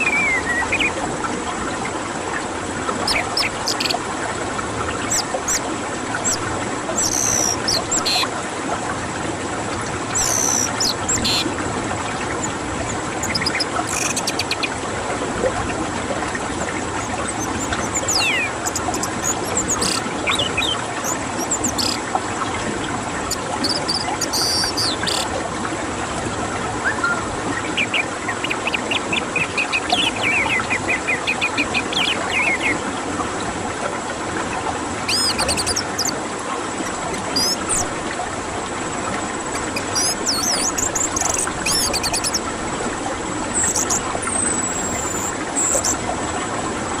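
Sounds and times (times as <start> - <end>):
bird whistled notes: 0.0 - 0.9, 17.3 - 22.0, 26.8 - 28.8
rapid bird twittering: 0.0 - 1.0, 3.0 - 4.0, 5.0 - 5.6, 6.2 - 8.3, 10.1 - 11.5, 12.1 - 14.8, 16.9 - 22.0, 23.3 - 25.3, 26.8 - 32.8, 35.1 - 36.2, 37.1 - 37.9, 39.5 - 42.4, 43.5 - 46.0.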